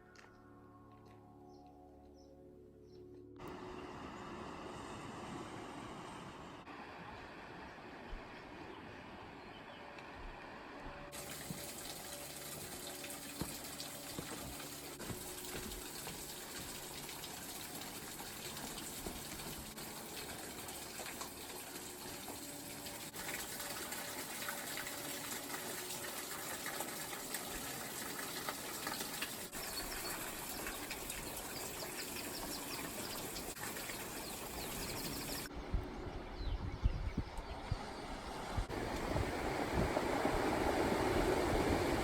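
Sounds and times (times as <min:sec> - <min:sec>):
running water rushing: 0:11.1 - 0:35.5, 0:37.7 - 0:42.0.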